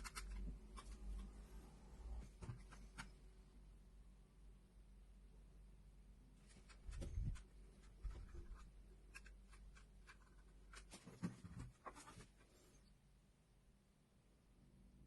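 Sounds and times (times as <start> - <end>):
faint scratching: 6.4 - 12.9.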